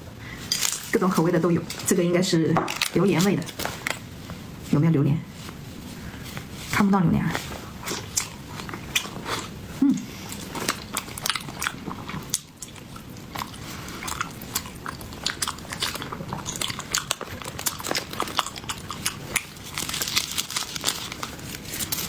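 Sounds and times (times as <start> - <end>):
person chewing sticky food: 7.4 - 22.0.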